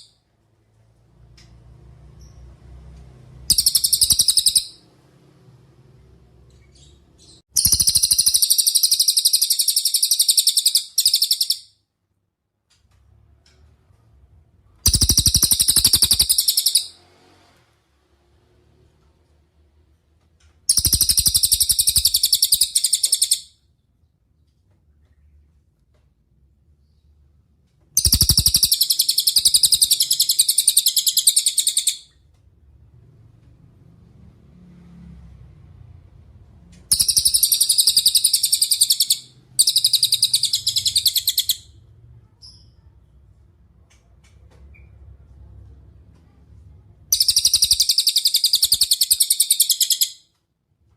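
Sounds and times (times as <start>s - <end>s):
bird singing rapid high trill: 3.5s - 4.8s, 7.6s - 11.7s, 14.9s - 17.0s, 20.7s - 23.4s, 28.0s - 32.1s, 36.9s - 41.7s, 47.1s - 50.2s.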